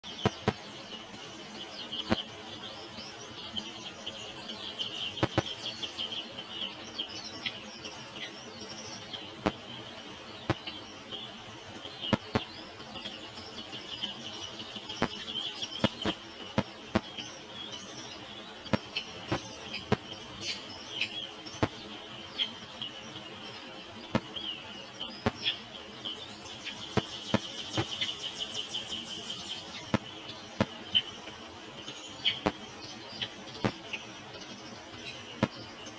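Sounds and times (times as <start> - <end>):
nestlings chirping: 0.0 - 9.8, 10.4 - 35.9
sharp clicks and taps: 0.2 - 0.6, 5.2 - 5.5.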